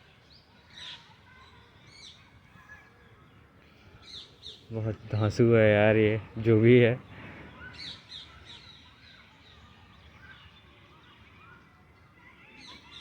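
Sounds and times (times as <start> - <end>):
birds chirping and calling: 0.7 - 11.1.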